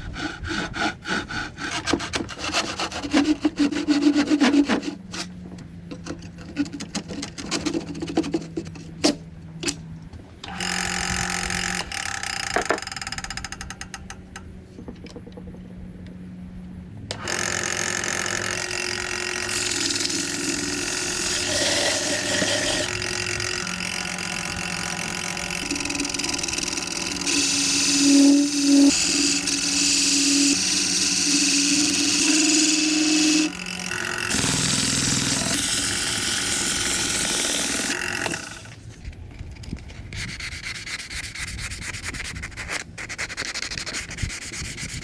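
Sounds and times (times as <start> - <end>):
electric power tool motor: 10.5 - 13.0, 17.1 - 39.0.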